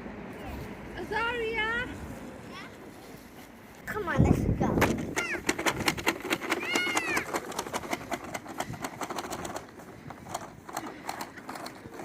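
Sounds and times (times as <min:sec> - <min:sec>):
toy lawn mower clicking: 0:04.8 - 0:12.0.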